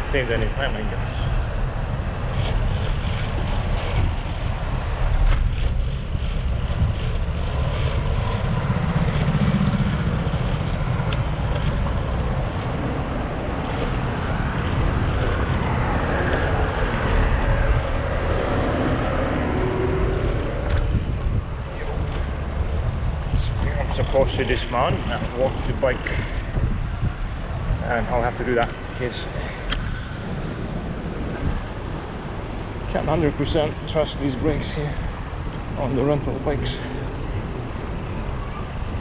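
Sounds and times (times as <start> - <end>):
bicycle rumbling and rattling: 0.0 - 39.0
wind buffeting microphone: 0.0 - 39.0.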